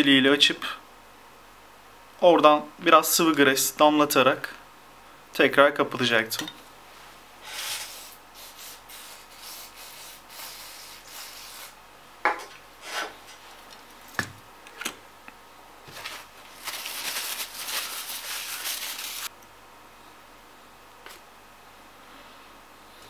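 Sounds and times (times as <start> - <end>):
small parts rubbing by hand: 7.4 - 11.8, 15.9 - 19.3.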